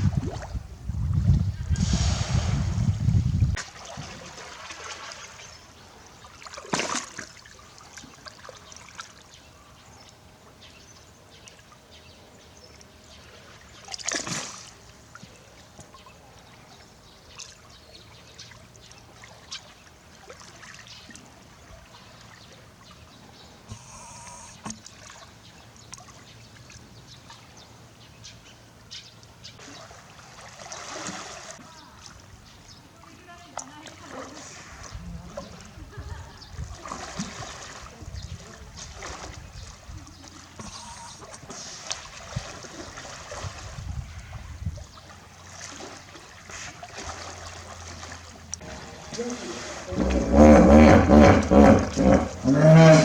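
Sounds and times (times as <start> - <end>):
water trickling and splashing: 0.0 - 50.6
loud water splashes: 1.7 - 5.6, 29.6 - 32.1, 45.4 - 53.0.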